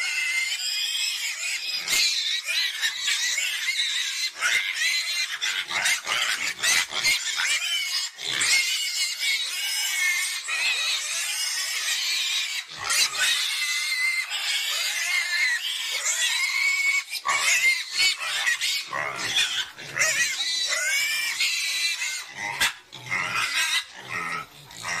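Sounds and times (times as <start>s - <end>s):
young pigs squealing: 0.0s - 25.0s.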